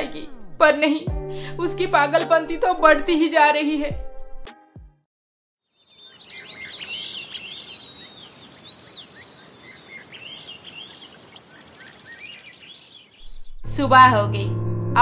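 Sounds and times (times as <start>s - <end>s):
small birds chirping: 5.6s - 13.6s.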